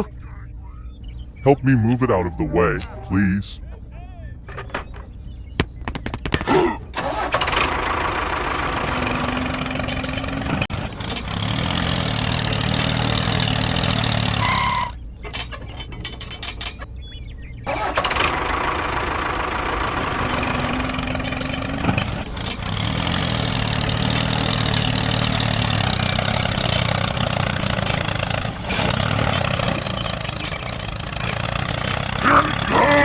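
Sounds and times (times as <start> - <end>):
vehicle engine running: 0.6 - 33.0
sharp knocks: 4.5 - 6.8.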